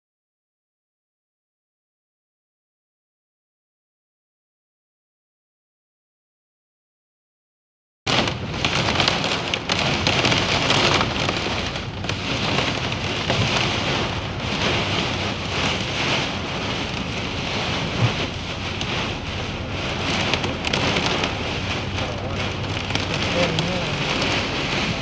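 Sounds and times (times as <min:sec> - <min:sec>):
heavy rain on a car: 0:08.1 - 0:25.0.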